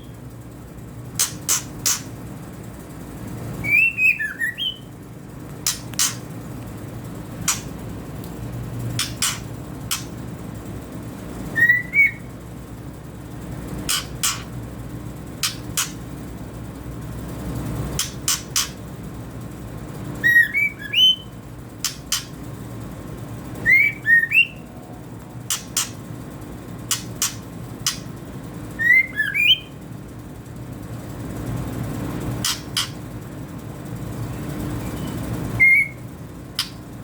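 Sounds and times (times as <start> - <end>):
bird whistled notes: 3.6 - 4.9, 11.5 - 12.3, 20.2 - 21.4, 23.6 - 24.7, 28.8 - 29.8, 35.0 - 36.0
bird chip calls: 3.6 - 5.0, 5.6 - 6.3, 8.9 - 10.2, 11.6 - 12.4, 13.9 - 14.6, 15.4 - 16.0, 18.0 - 18.8, 20.2 - 22.4, 23.6 - 24.7, 25.5 - 26.0, 26.9 - 28.1, 28.8 - 29.8, 32.4 - 33.1, 35.0 - 36.9.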